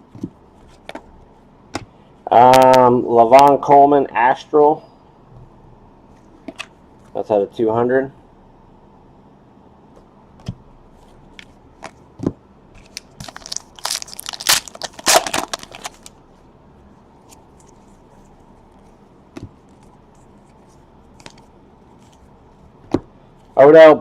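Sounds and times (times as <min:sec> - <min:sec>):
wrapper tearing and crinkling: 0:12.8 - 0:16.1.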